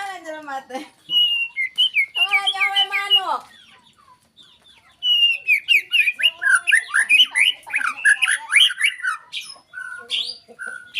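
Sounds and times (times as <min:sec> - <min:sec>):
bird singing varied whistles: 0:01.0 - 0:03.3.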